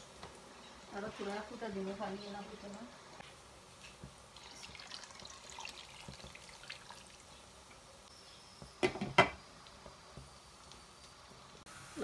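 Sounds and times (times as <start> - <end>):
pot bubbling and crackling: 0.0 - 11.7.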